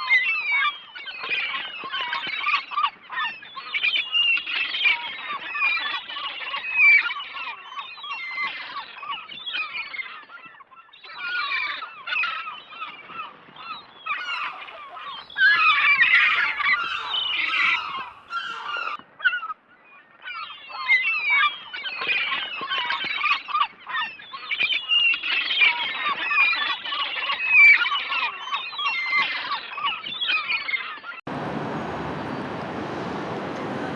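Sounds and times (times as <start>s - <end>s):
gulls calling: 14.2s - 19.0s.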